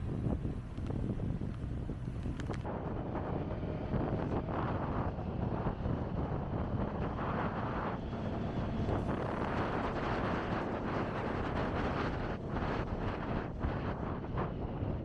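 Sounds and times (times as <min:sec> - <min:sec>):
motorcycle road and engine noise: 0:00.0 - 0:15.0
wind buffeting microphone: 0:00.0 - 0:15.0.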